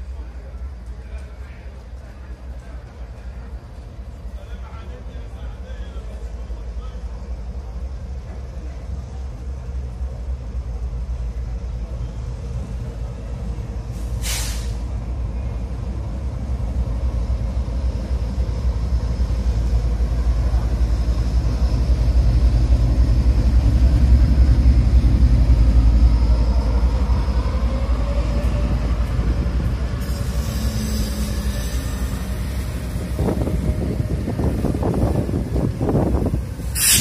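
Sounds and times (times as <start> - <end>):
diesel locomotive engine rumble: 0.0 - 37.0
air hiss: 14.0 - 14.9, 36.6 - 37.0.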